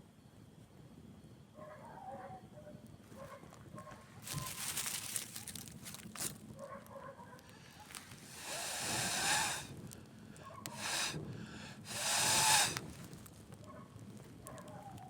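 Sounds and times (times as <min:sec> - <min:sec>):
hissing rushes: 0:07.8 - 0:09.8, 0:10.6 - 0:13.0.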